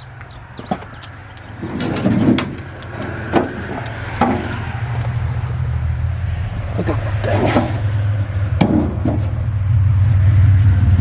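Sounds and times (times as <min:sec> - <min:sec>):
footsteps on debris: 0:00.0 - 0:05.8, 0:07.2 - 0:09.5
vehicle passing rumble: 0:00.0 - 0:11.0.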